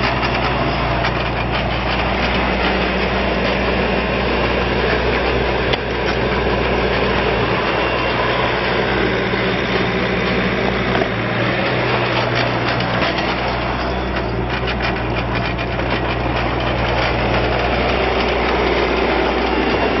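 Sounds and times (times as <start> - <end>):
diesel engine running: 0.0 - 20.0
short rattles or clanks: 10.0 - 20.0.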